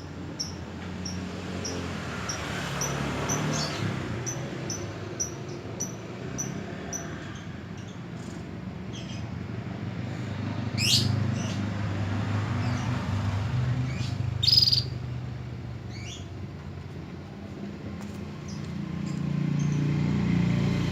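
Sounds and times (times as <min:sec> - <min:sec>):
canary chirping: 0:00.4 - 0:07.1, 0:13.9 - 0:15.0, 0:15.9 - 0:16.3.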